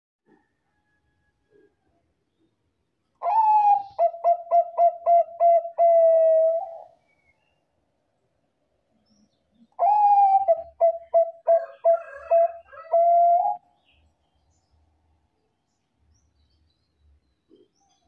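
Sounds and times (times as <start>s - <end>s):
dove cooing: 3.2s - 7.0s, 9.7s - 13.6s.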